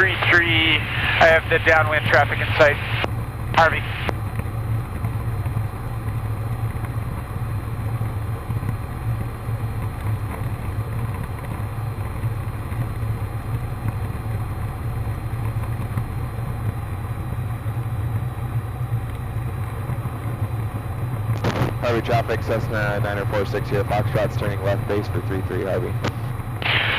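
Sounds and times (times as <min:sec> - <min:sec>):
airplane engine and propeller droning: 0:00.0 - 0:26.9.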